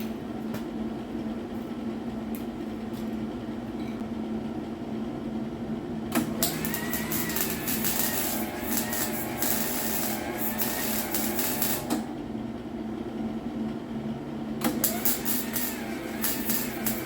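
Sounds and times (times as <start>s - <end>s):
arc welding buzzing crackle: 6.1s - 12.1s, 14.6s - 17.0s.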